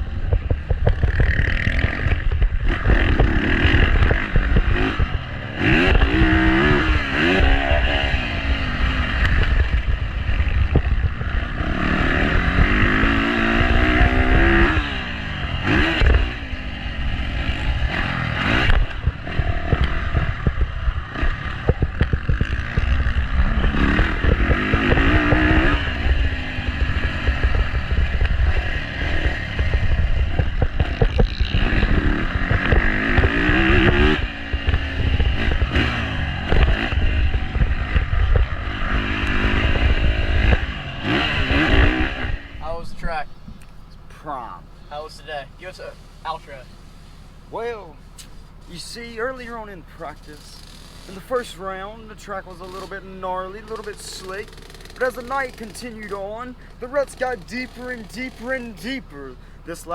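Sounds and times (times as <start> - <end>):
wind on microphone: 0.0 - 43.6
dirt bike engine revving: 0.0 - 46.8, 47.4 - 59.9.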